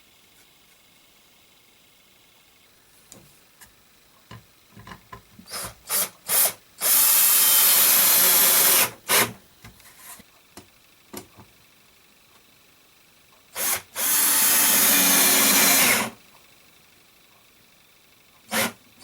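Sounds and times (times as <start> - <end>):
electric drill running: 5.5 - 9.3, 13.6 - 16.2, 18.5 - 18.8.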